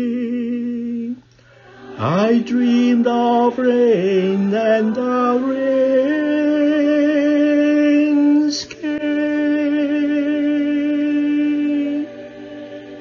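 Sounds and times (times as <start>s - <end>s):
quiet musical accompaniment: 0.0s - 13.0s
singer breath: 1.3s - 1.9s.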